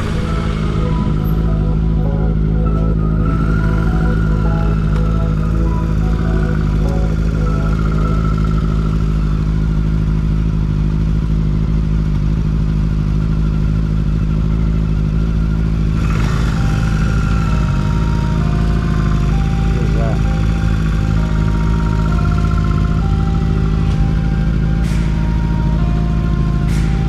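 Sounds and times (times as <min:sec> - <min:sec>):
rush of noise: 0:00.0 - 0:11.5
motorcycle engine running: 0:00.0 - 0:27.0.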